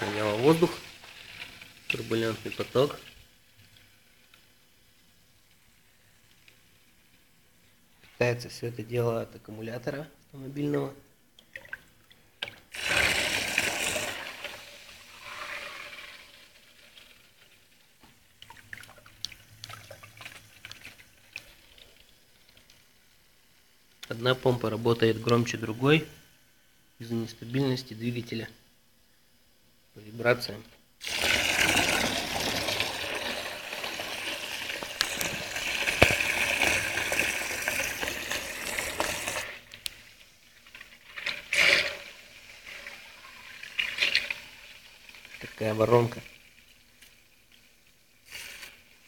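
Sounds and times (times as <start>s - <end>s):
water rushing through pumps: 0.0s - 1.0s, 12.7s - 14.6s, 31.0s - 39.6s.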